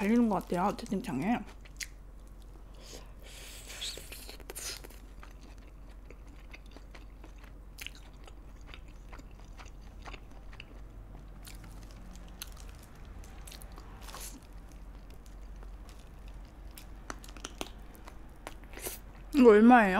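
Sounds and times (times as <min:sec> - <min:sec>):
chewing with wet mouth clicks: 0:01.5 - 0:02.6, 0:03.8 - 0:19.4.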